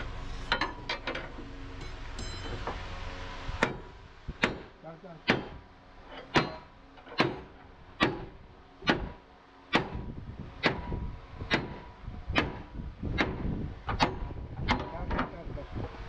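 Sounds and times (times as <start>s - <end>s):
low steady rumble: 0.0s - 16.0s
hammer striking steel: 1.8s - 2.8s, 3.6s - 5.6s, 6.3s - 10.0s, 11.5s - 11.8s.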